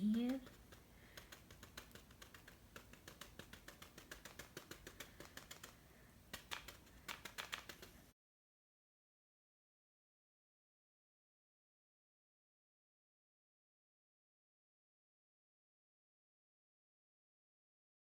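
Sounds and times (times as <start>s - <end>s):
paintbrush tapping on paper: 0.0s - 8.0s.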